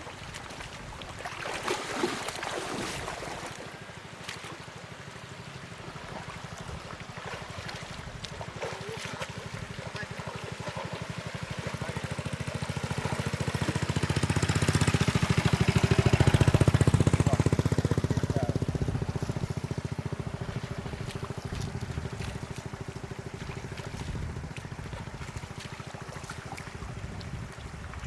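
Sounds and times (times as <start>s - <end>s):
small engine running: 8.4s - 28.0s.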